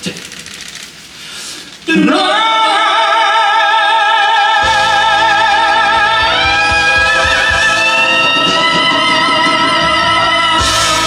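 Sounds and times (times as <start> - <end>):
person singing high held note: 1.9 - 11.0
instrumental accompaniment with bass: 4.6 - 11.0.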